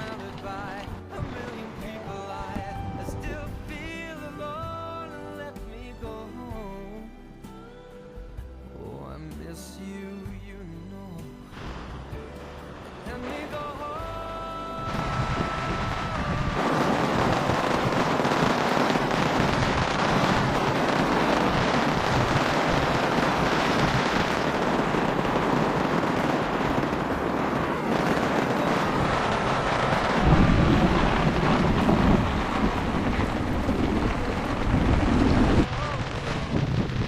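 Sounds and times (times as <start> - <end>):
wind buffeting microphone: 0.0 - 4.0, 14.8 - 37.0
heavy rain pouring: 0.0 - 4.9, 11.5 - 37.0.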